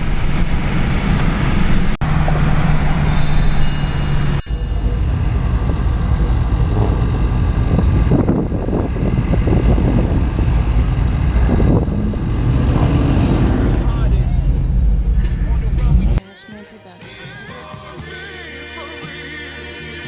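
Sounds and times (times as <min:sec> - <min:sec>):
road noise: 0:00.0 - 0:16.2
car engine running: 0:04.0 - 0:16.2.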